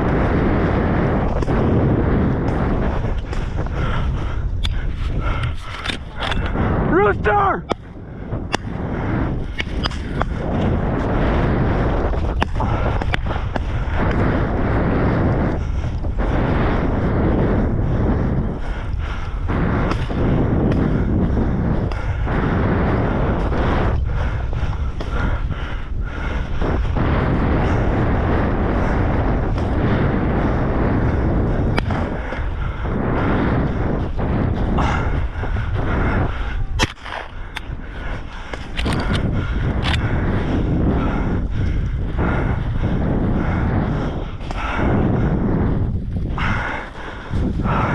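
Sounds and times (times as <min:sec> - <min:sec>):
wind buffeting microphone: 0:00.0 - 0:47.9
sharp clicks: 0:38.5 - 0:40.1.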